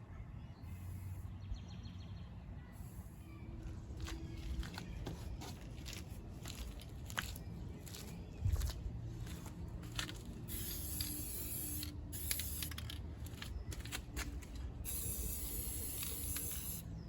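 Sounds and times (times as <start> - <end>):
spray paint can hissing: 10.5 - 14.1, 14.8 - 16.9.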